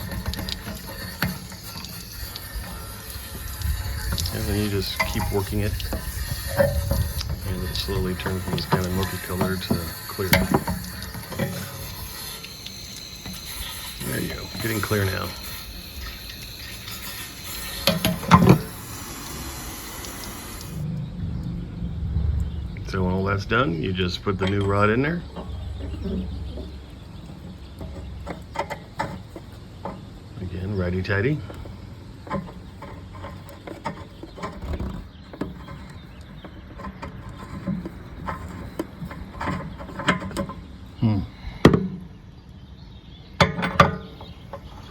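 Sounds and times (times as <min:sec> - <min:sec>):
water spraying hiss: 0:00.0 - 0:20.9.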